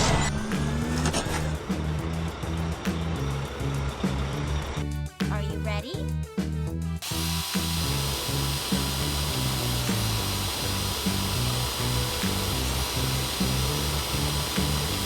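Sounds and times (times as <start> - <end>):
cartoon background music: 0.0 - 15.0
power drill whirring: 7.0 - 15.0.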